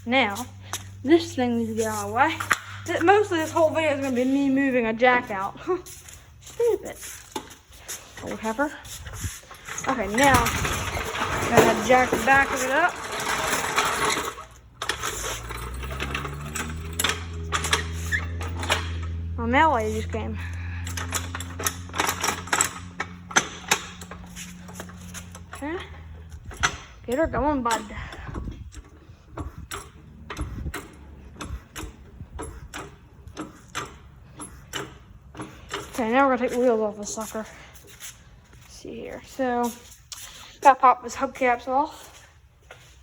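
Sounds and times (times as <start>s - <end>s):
jack clicking and rattling: 0.2s - 38.7s
steady low hum: 14.2s - 41.1s.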